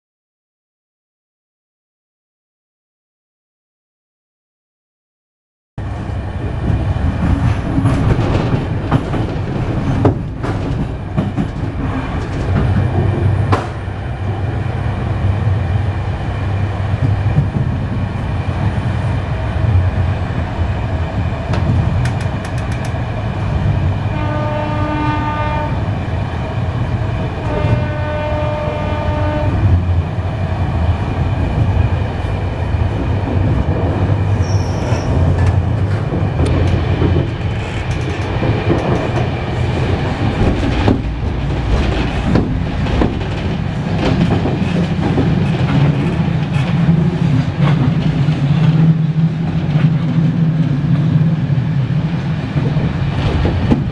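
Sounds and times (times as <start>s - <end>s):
train rumble and wheel clatter: 5.8s - 53.9s
clicks over rail joints: 21.5s - 23.0s
train horn: 24.1s - 26.0s, 27.3s - 29.8s.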